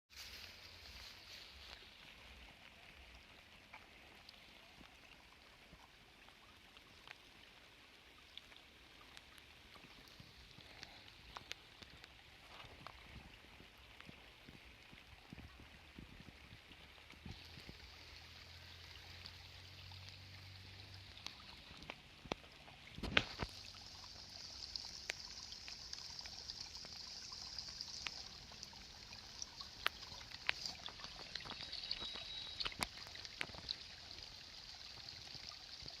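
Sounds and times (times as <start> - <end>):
rain hiss: 9.9 - 12.0, 17.2 - 36.0
raindrops ticking: 14.0 - 36.0.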